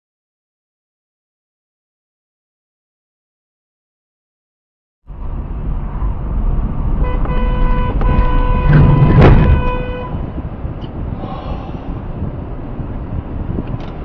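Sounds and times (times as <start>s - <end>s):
road and wind noise: 5.1s - 14.0s
car horn blaring: 7.0s - 10.4s
loud thump: 8.0s - 9.9s.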